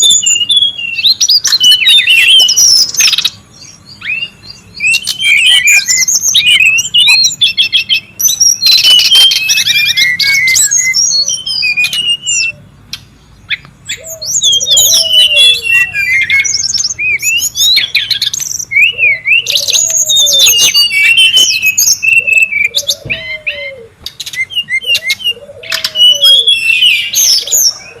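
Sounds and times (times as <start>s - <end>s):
lower arching bird call: 13.5s - 28.0s.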